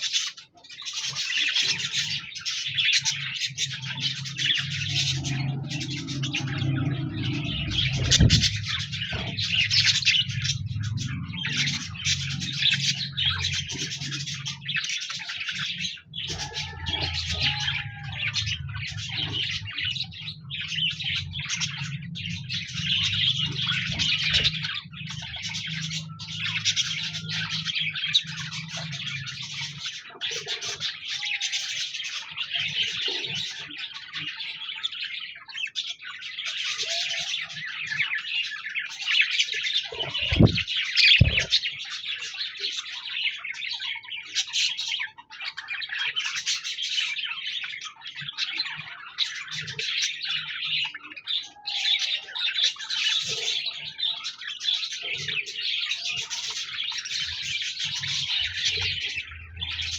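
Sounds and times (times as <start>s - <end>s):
budgerigars chattering and warbling: 0.0s - 59.9s
low thumps: 6.4s - 11.1s, 40.0s - 41.6s.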